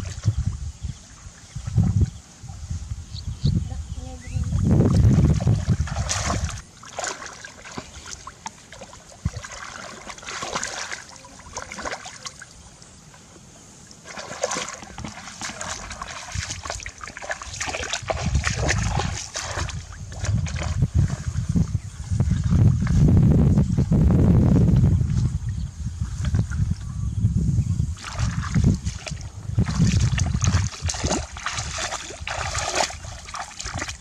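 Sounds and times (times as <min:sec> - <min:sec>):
shallow water splashing: 0:04.9 - 0:12.6, 0:13.9 - 0:21.5, 0:28.0 - 0:34.0.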